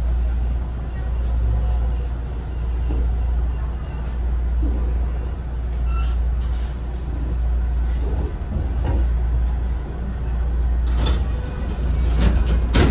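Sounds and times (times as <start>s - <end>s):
wheels rumbling on rail: 0.0s - 12.9s
faint brake squeal: 0.2s - 9.9s.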